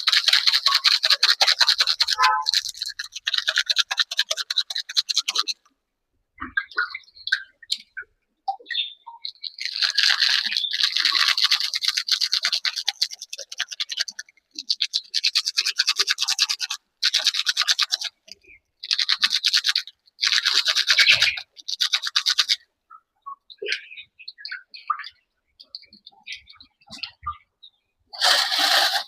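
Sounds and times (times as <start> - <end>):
fast scraping strokes: 0.0 - 5.6, 9.4 - 22.6, 28.1 - 29.0.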